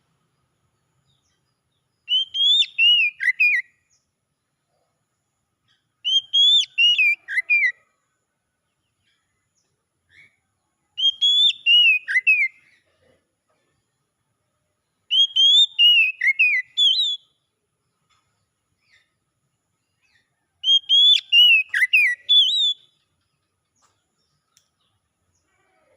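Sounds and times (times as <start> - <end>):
bird singing whistled notes: 1.0 - 4.1, 5.7 - 7.8, 10.1 - 12.7, 14.9 - 17.6, 19.8 - 23.2.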